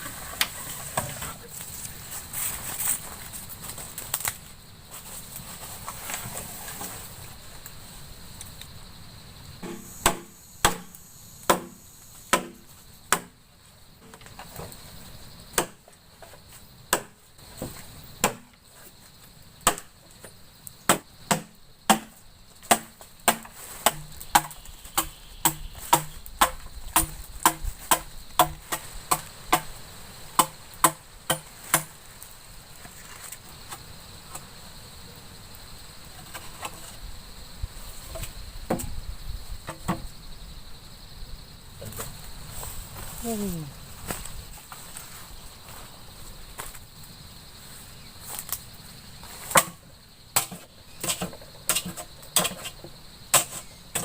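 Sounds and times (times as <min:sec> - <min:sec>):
crickets chirping: 0:00.0 - 0:54.0
tool chopping: 0:09.6 - 0:13.3, 0:15.6 - 0:15.8, 0:16.9 - 0:17.2, 0:18.2 - 0:18.5, 0:19.6 - 0:19.9, 0:20.9 - 0:29.7, 0:30.4 - 0:31.9.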